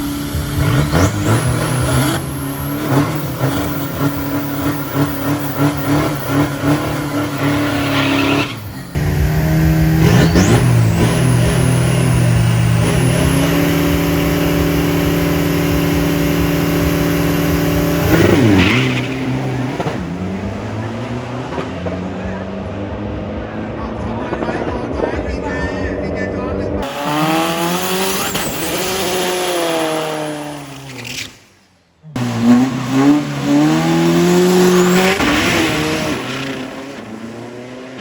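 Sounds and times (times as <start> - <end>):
race car engines revving: 0.0 - 38.0.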